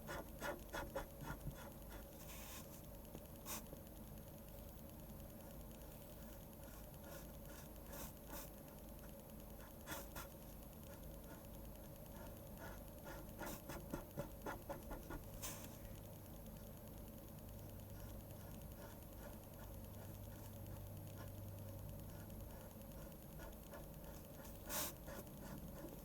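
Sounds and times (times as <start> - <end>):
pencil scratching on paper: 0.0 - 2.7, 6.2 - 8.5, 9.6 - 15.7, 17.9 - 21.4, 22.0 - 26.0.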